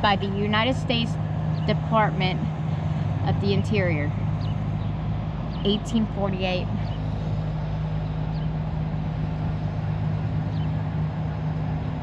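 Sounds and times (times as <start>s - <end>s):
low mechanical hum: 0.0s - 12.0s
outdoor background noise: 0.0s - 12.0s.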